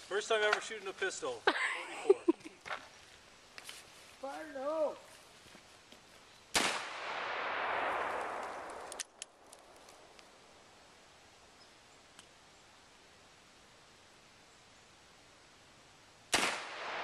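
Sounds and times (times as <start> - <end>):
handgun shot: 6.6 - 9.1, 16.3 - 17.0.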